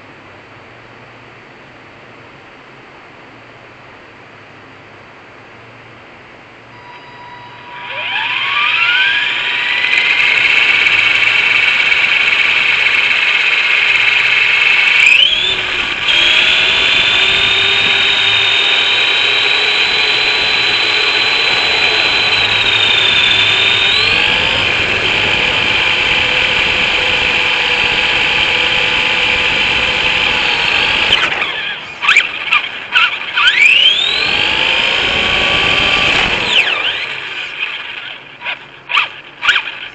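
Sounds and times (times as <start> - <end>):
electric motor whining: 6.8 - 39.9.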